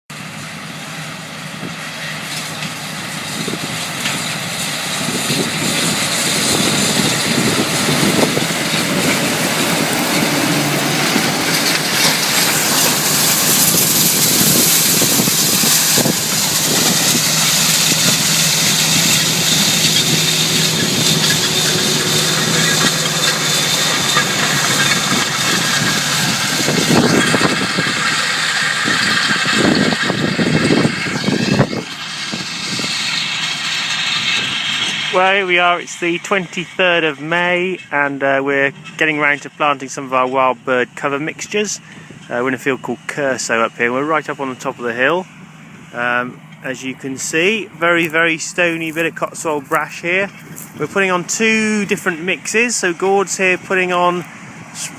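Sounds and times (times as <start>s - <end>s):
tractor engine running: 0.1s - 54.9s
broad rushing hiss: 0.8s - 36.2s.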